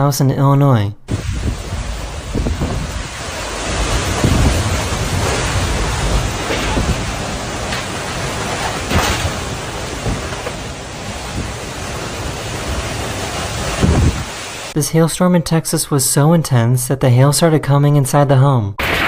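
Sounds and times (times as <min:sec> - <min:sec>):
storm wind and rain: 0:01.1 - 0:14.8.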